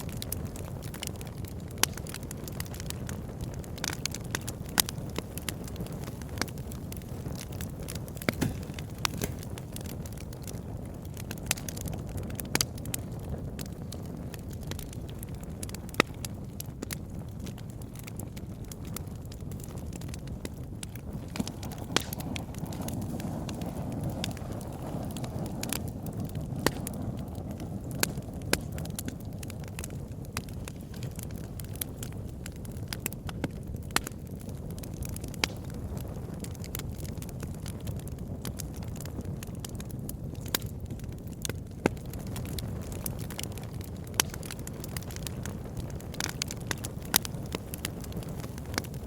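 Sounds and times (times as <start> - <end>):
rumble of flames: 0.0 - 49.0
wood crackling and popping: 0.0 - 49.0
loud wood snaps: 6.4 - 10.6, 21.3 - 23.6.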